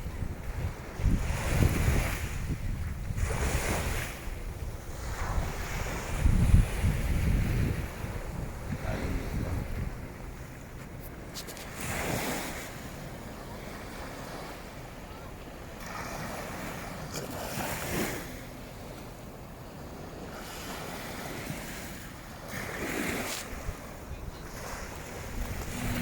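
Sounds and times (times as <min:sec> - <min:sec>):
wind buffeting microphone: 0:00.0 - 0:14.1, 0:21.4 - 0:26.0
waves breaking on beach: 0:00.0 - 0:26.0.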